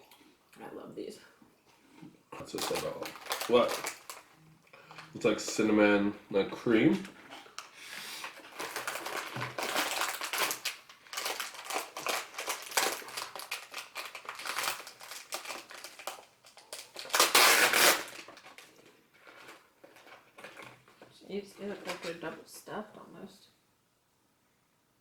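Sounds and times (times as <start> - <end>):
plastic wrapper tearing and crinkling: 2.4 - 4.4, 7.5 - 21.0, 21.6 - 22.2.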